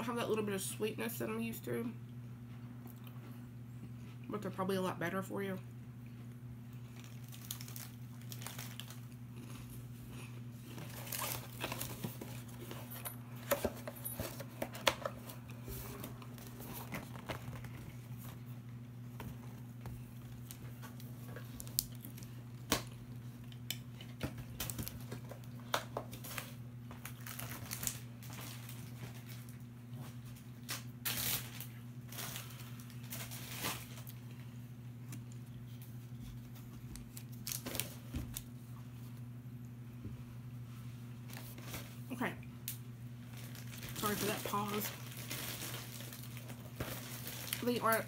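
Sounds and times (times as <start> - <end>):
steady low hum: 0.0 - 48.0
snack packaging crinkling: 6.7 - 18.5, 19.2 - 34.5, 35.1 - 38.5, 42.6 - 48.0.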